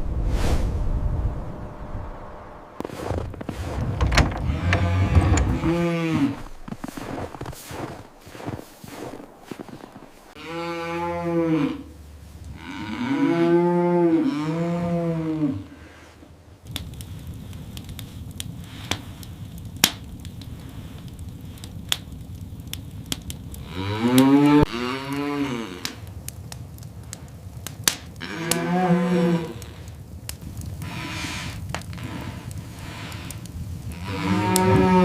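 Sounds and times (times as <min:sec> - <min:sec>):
cow mooing: 0:10.4 - 0:11.9, 0:12.6 - 0:15.7, 0:28.2 - 0:29.6, 0:34.0 - 0:35.0
steady hiss: 0:15.7 - 0:23.8.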